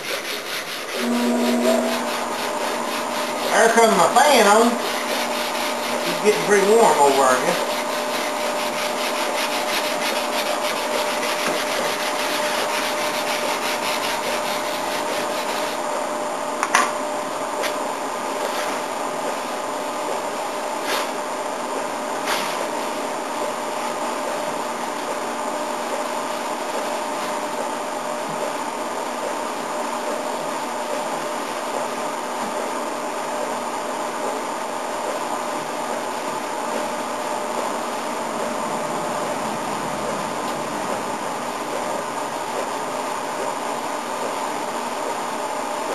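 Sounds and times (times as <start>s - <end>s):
sanding a car body panel: 0.0s - 15.8s
faint steady hum: 0.0s - 20.7s
fan humming: 0.0s - 45.9s.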